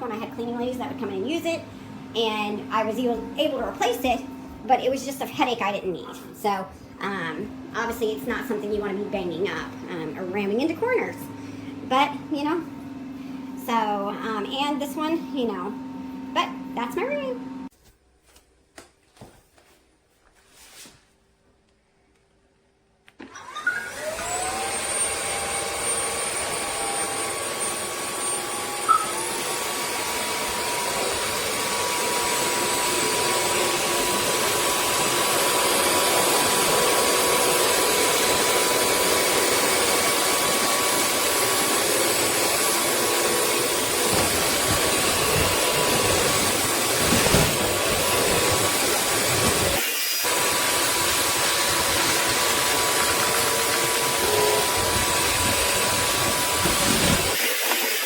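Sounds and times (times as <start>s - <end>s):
vacuum motor whining and sucking: 23.2s - 58.0s.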